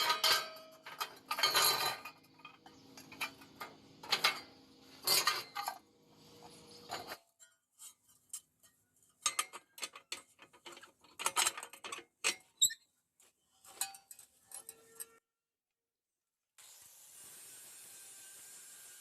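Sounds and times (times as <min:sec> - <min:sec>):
metal tools clinking: 0:00.0 - 0:05.8, 0:06.5 - 0:12.8.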